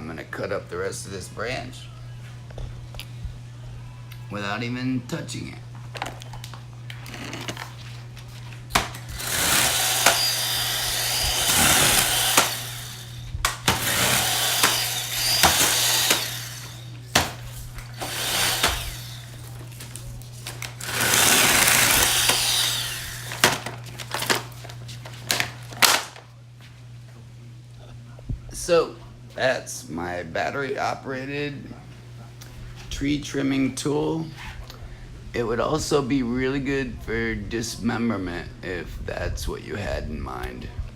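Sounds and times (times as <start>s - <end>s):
mini chainsaw cutting branch: 8.7s - 24.5s.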